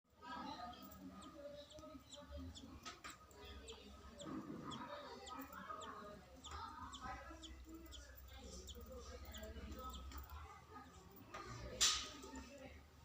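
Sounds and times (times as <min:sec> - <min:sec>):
clucking bird calls: 0:01.1 - 0:10.2.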